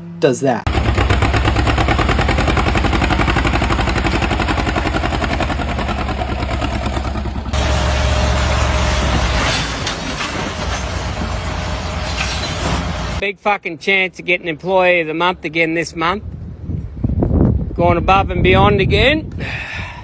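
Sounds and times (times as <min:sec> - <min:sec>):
tractor engine pulsing: 0:00.7 - 0:12.1
engine running steadily: 0:00.7 - 0:13.2.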